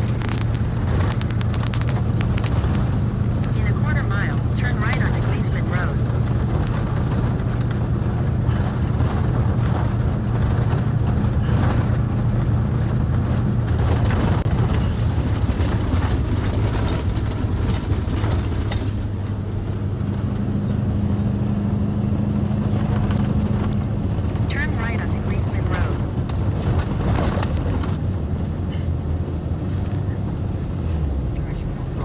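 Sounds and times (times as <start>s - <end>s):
scattered clicks and knocks: 0.0s - 21.6s
truck engine humming: 0.0s - 32.0s.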